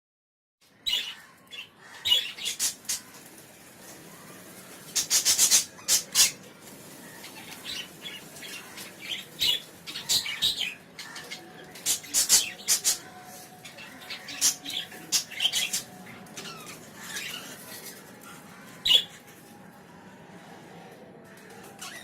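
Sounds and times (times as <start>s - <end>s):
budgerigars chirping and squawking: 0.8s - 3.7s, 4.8s - 18.0s, 18.6s - 19.2s.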